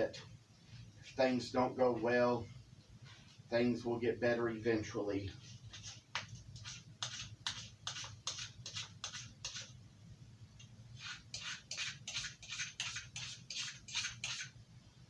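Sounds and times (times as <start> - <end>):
knife scraping on whetstone: 5.7 - 6.0, 6.6 - 9.7, 11.0 - 14.6.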